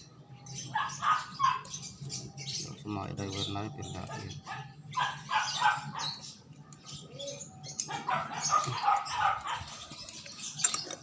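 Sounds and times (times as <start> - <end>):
dog barking: 0.7 - 1.7, 4.1 - 6.2, 7.9 - 9.8.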